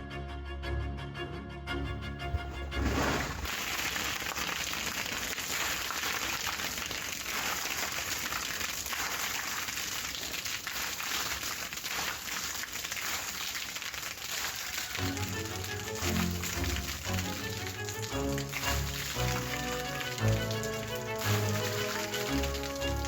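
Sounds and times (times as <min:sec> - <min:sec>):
rustling hiss with crackling: 0:02.3 - 0:07.4.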